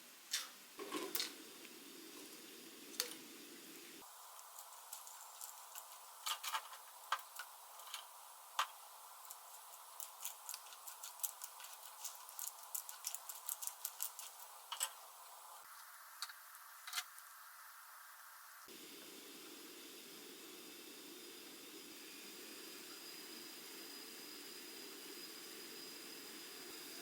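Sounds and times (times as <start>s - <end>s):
small hard objects clicking together: 4.3s - 15.0s.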